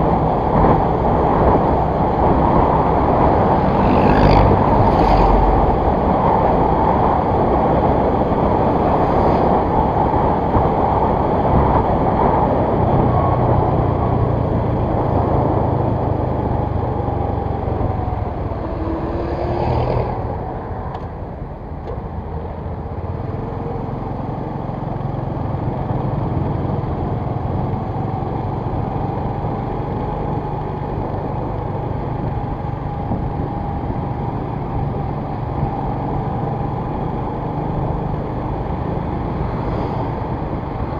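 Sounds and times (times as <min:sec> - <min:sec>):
road and wind noise: 0:00.0 - 0:40.9.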